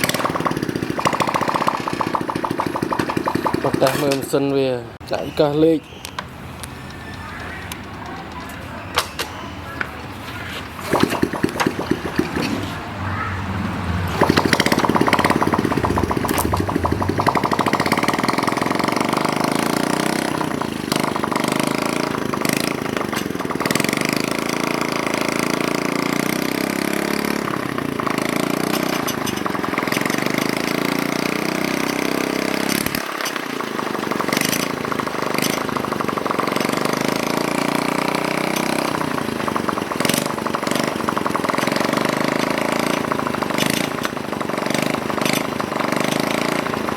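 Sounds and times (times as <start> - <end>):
small motorcycle engine: 0.0 - 4.6, 10.2 - 46.9.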